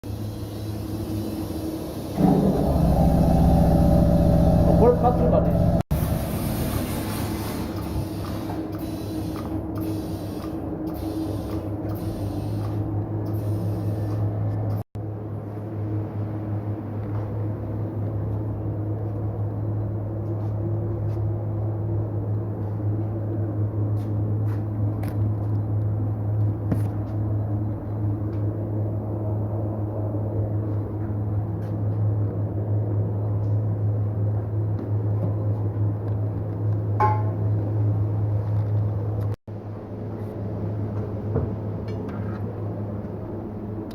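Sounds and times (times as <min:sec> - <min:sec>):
low electric machinery hum: 0:00.1 - 0:06.9.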